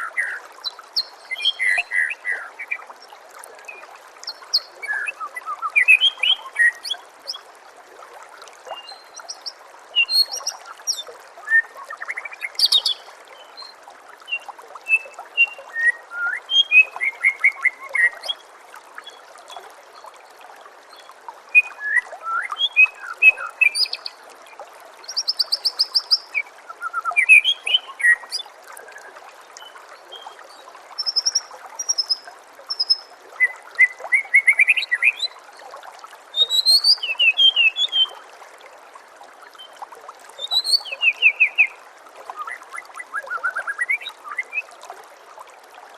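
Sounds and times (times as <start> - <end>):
bird singing whistles and trills: 0.0 - 2.8, 3.7 - 7.0, 8.8 - 13.7, 14.3 - 18.4, 21.5 - 24.1, 25.1 - 28.4, 31.0 - 35.4, 36.4 - 38.2, 40.4 - 41.8, 42.4 - 44.7
water trickling: 0.0 - 45.9.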